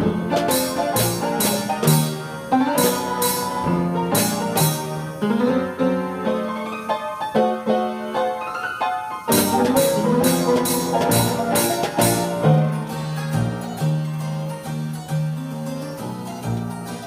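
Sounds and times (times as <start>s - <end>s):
orchestrion piano tune: 0.0s - 17.0s
drum and tambourine strikes: 0.3s - 4.9s, 9.3s - 13.5s.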